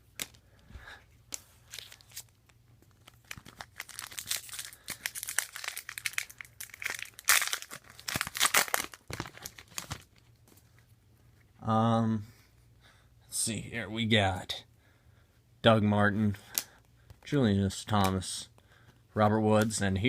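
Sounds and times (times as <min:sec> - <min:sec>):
foil wrapper crinkling and tearing: 0:01.6 - 0:10.2.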